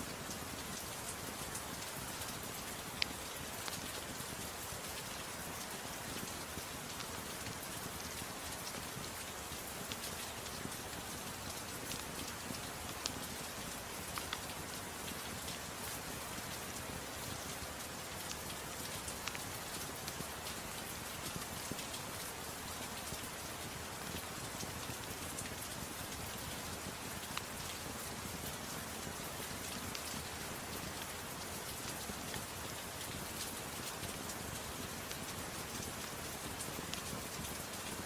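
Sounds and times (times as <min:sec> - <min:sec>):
soft rain: 0:00.0 - 0:38.0
wood fire crackling: 0:18.2 - 0:20.9.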